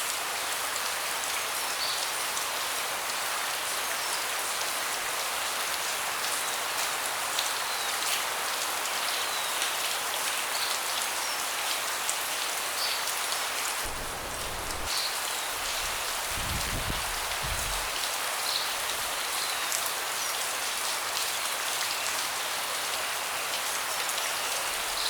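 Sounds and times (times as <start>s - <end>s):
rain on wooden deck: 0.0s - 25.0s.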